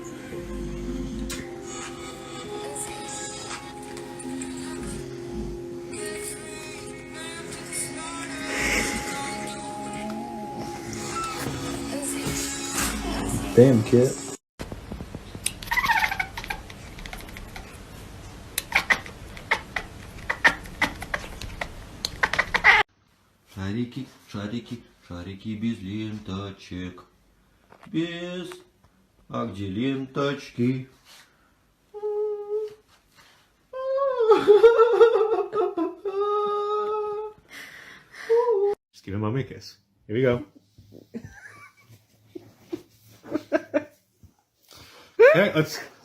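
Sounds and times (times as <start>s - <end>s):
humming vocal tone: 0.0s - 13.8s.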